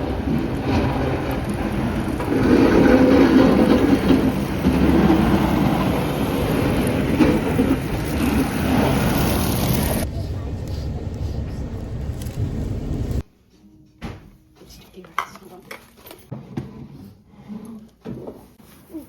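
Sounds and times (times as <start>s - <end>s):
motor vehicle passing close by: 0.0s - 13.2s.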